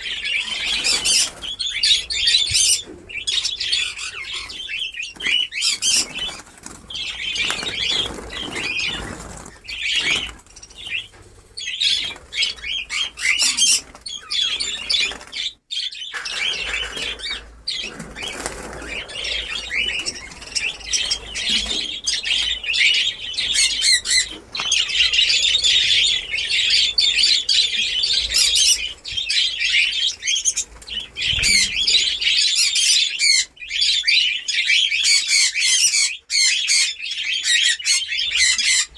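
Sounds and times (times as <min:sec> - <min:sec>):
budgerigars chattering: 0:00.0 - 0:38.9
wings flapping: 0:05.2 - 0:15.5, 0:16.2 - 0:26.0.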